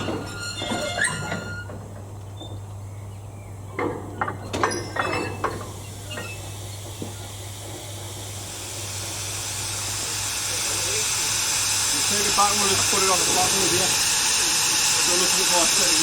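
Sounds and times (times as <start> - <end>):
steam hissing from locomotive: 4.8 - 16.0.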